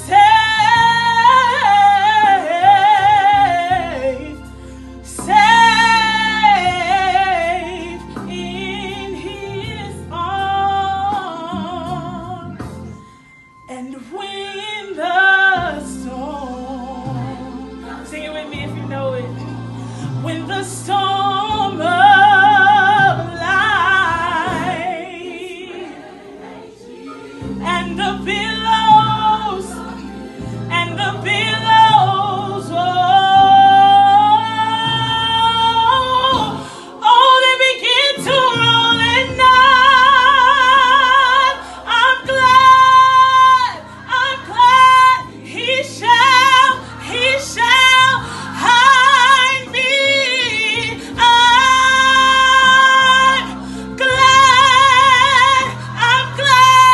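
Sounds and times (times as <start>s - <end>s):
person singing gospel solo: 13.7s - 56.9s
sustained low accompaniment chords: 15.6s - 25.3s, 27.4s - 36.8s.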